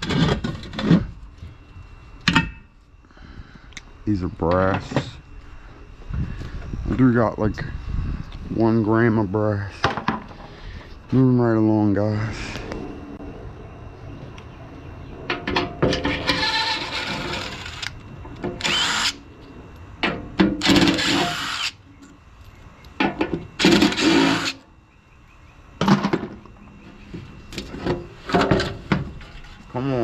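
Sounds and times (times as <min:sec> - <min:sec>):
power drill bursts: 0:18.6 - 0:19.2, 0:20.6 - 0:21.8, 0:23.6 - 0:24.6.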